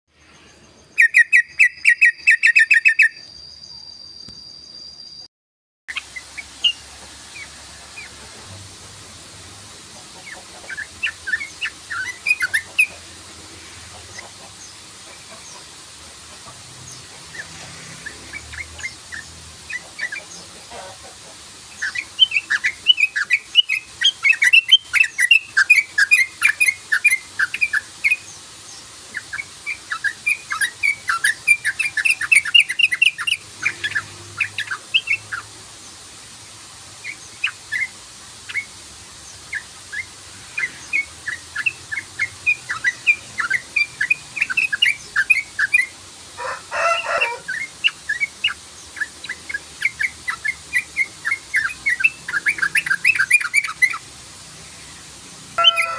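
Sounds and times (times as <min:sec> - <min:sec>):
bird chattering notes: 0:10.0 - 0:13.2, 0:46.8 - 0:54.1.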